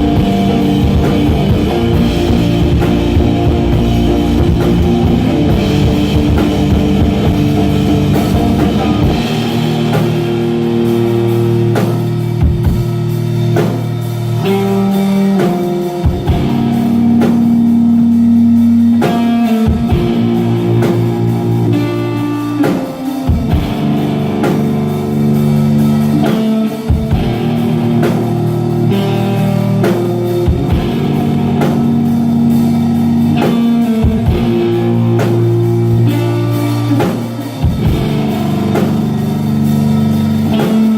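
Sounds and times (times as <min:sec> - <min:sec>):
drum hits: 0:00.0 - 0:11.1
loud guitar chords: 0:00.0 - 0:40.9.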